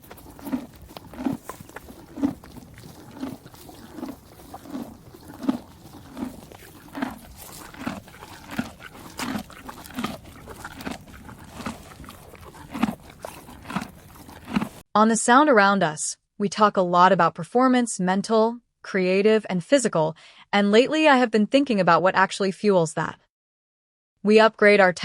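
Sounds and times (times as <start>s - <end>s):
horse chewing hay: 0.0s - 14.8s.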